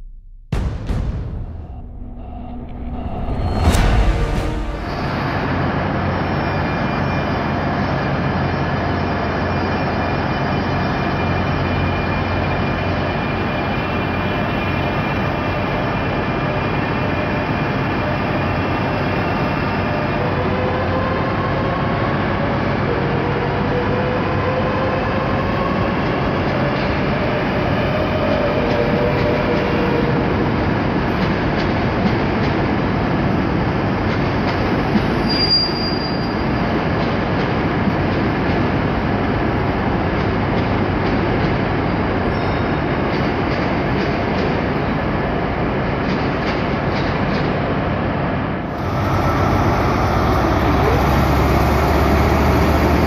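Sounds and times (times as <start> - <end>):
train wheels rumbling: 0.0 - 9.1, 48.7 - 53.0.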